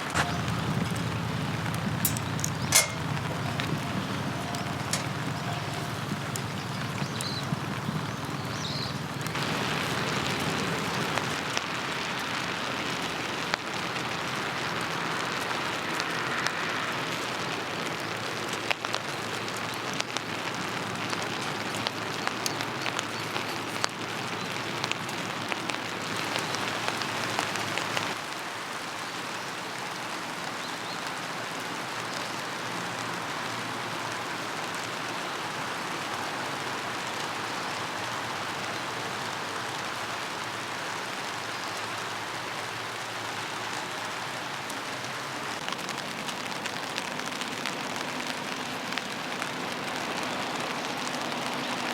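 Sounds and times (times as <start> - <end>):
rain drops tapping on a surface: 0.0 - 51.9.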